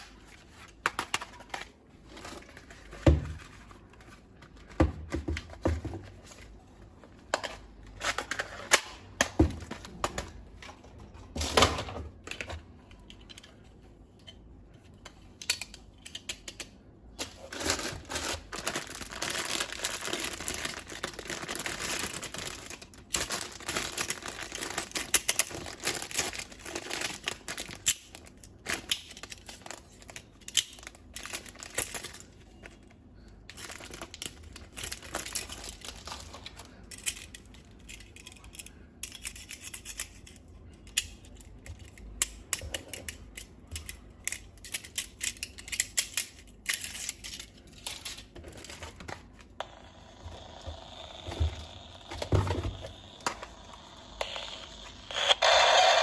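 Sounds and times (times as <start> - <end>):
plastic packaging crinkling: 17.4 - 36.8.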